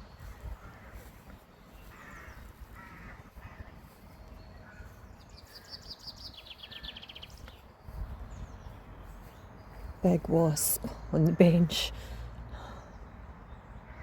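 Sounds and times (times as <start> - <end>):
traffic rumble: 0.0 - 14.0
crow cawing: 1.8 - 3.8.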